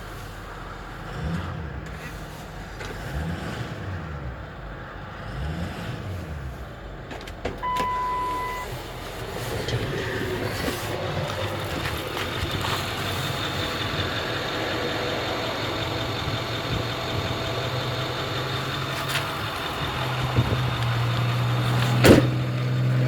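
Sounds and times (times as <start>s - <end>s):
truck engine revving: 0.0s - 23.0s
high electronic beep: 7.6s - 8.8s.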